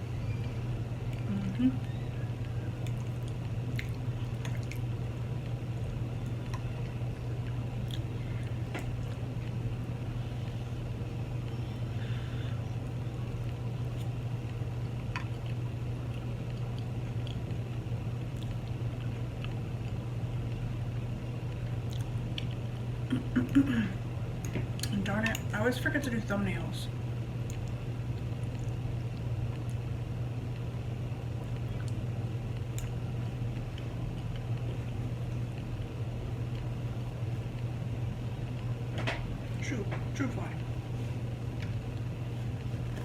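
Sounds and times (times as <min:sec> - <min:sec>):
steady low hum: 0:00.0 - 0:43.0
close chewing and mouth sounds: 0:00.4 - 0:09.7, 0:12.8 - 0:20.8, 0:21.5 - 0:23.4, 0:27.4 - 0:30.6, 0:31.3 - 0:37.8.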